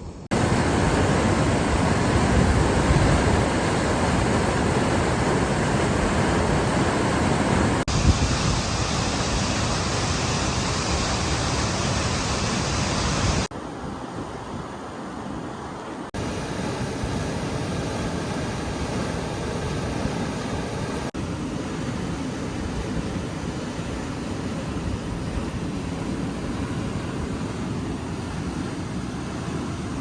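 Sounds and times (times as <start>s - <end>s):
water rushing: 0.3s - 30.0s.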